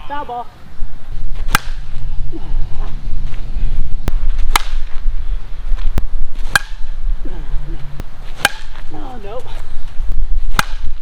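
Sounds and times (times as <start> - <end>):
wind rumbling on microphone: 0.0 - 11.0
bat striking softball: 1.4 - 1.9, 4.4 - 4.9, 6.4 - 6.9, 8.4 - 8.9, 10.5 - 11.0.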